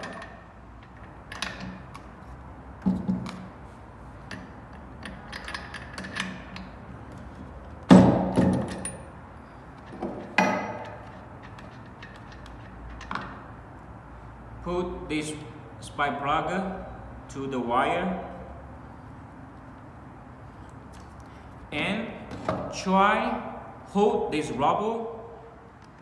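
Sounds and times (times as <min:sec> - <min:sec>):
sharp metallic knocks: 0:09.9 - 0:13.4.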